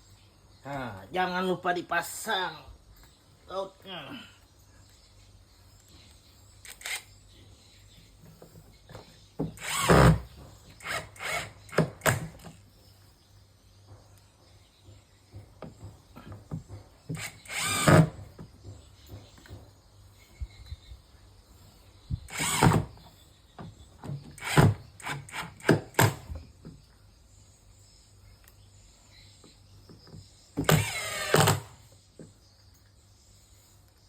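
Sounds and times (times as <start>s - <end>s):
power drill driving bolts: 9.4s - 12.5s, 17.1s - 18.3s, 22.3s - 23.0s, 24.3s - 26.3s, 30.6s - 31.8s.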